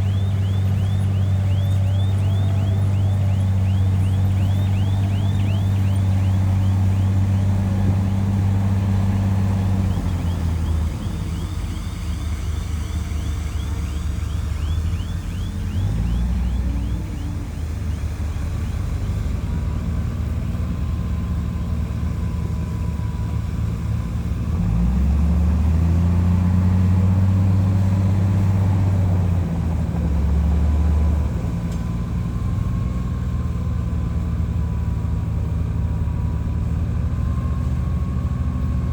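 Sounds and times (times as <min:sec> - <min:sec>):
rapid high squeak of running gear: 0:00.0 - 0:07.1, 0:10.1 - 0:16.9
bulldozer diesel engine drone: 0:00.0 - 0:38.9.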